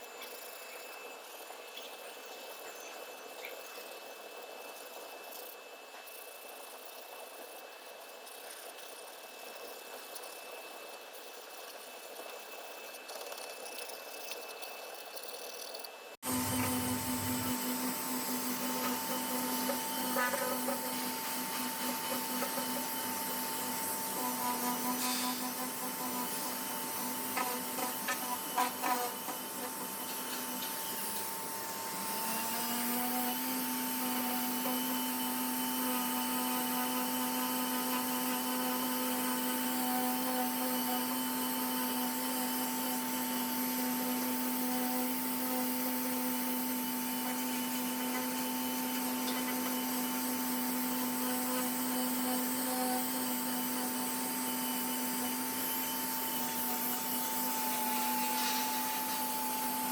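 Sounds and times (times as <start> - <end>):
power tool motor running: 15.2 - 59.9.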